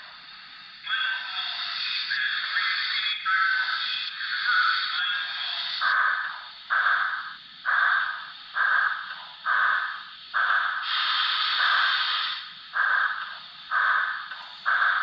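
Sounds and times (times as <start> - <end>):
high steam hiss: 0.0 - 15.0
steam exhaust chuffs: 1.0 - 15.0.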